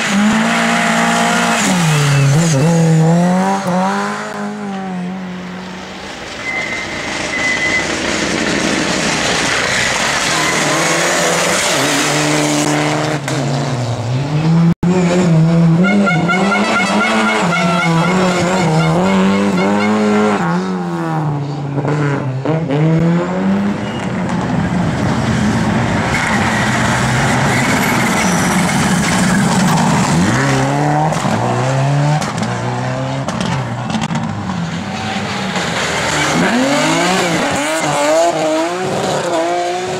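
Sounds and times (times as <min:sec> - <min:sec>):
rally car engines revving: 0:00.0 - 0:39.9
tyre squeal: 0:00.6 - 0:02.9, 0:06.4 - 0:08.3, 0:09.4 - 0:12.1, 0:26.1 - 0:30.5.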